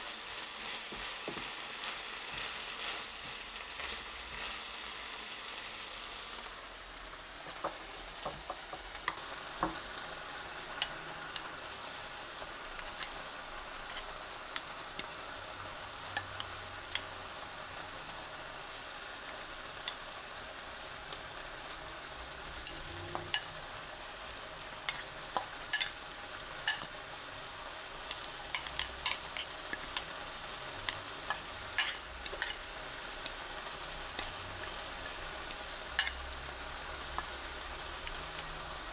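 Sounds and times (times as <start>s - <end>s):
food sizzling in a frying pan: 0.0s - 38.9s.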